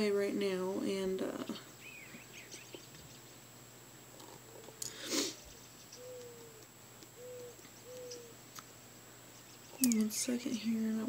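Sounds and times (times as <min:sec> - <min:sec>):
low bird hooting calls: 0:04.1 - 0:04.8, 0:05.4 - 0:08.5.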